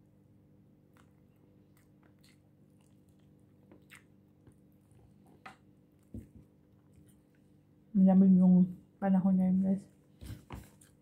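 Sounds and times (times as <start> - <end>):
biting and chewing: 0.9 - 5.4.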